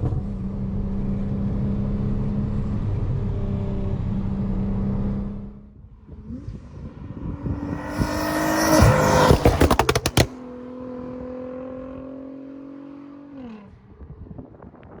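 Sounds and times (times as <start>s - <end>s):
car engine revving: 6.3s - 10.4s
exhaust bangs: 6.8s - 10.4s.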